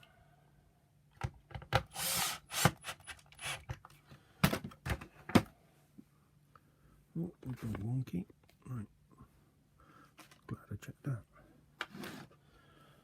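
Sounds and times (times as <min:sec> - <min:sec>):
plastic parts clicking and knocking: 0:01.1 - 0:01.9
plastic scrape: 0:11.8 - 0:12.4.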